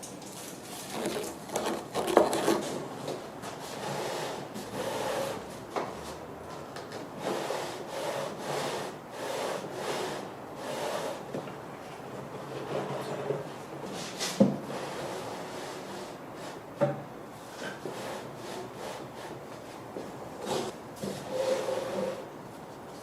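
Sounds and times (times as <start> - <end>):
wood rubbing back and forth: 20.4 - 22.2.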